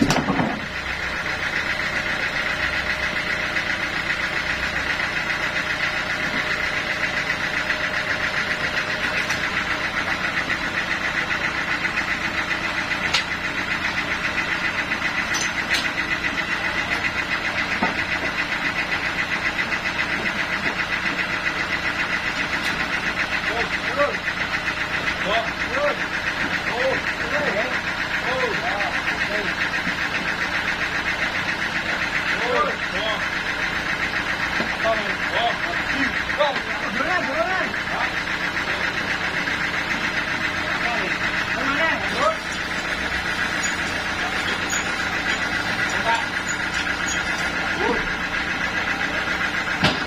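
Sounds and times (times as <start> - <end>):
sawmill machinery running: 0.0 - 50.0.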